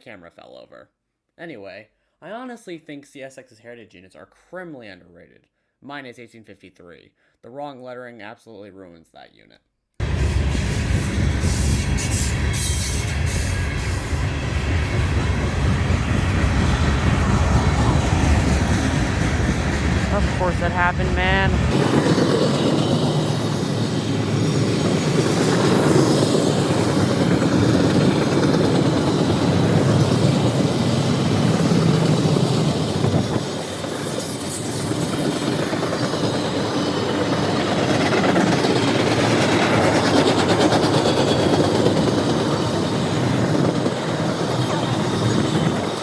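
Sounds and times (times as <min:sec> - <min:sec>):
train wheels rumbling on rails: 0:10.0 - 0:46.0
clickety-clack of rail joints: 0:21.7 - 0:46.0.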